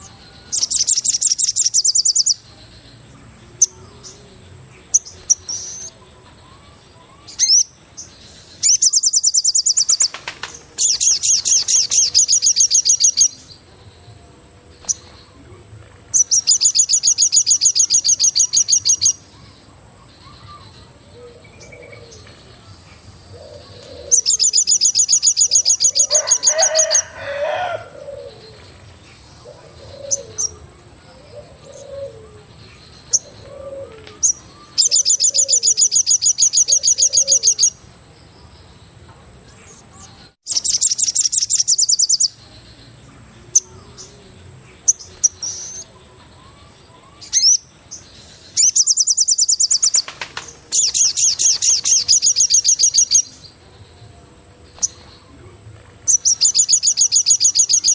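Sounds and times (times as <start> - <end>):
rapid pulsed bird trill: 3.6 - 15.4, 16.1 - 22.2, 23.3 - 27.2, 31.3 - 37.9, 40.3 - 44.2, 44.8 - 54.0, 56.1 - 57.9
soft low cooing: 33.3 - 34.1.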